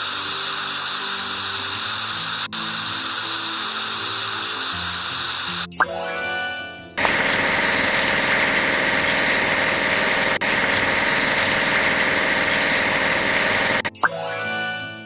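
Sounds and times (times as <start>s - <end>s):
construction vehicle engine running: 7.0s - 13.9s.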